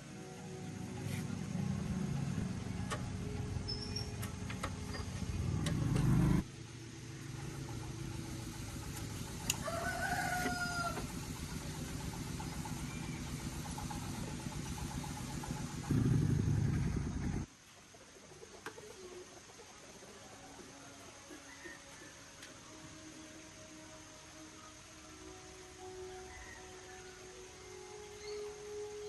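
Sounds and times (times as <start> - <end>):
engine rumble: 0.0 - 17.5
rooster crowing: 9.5 - 11.2, 20.1 - 22.4, 26.0 - 27.4.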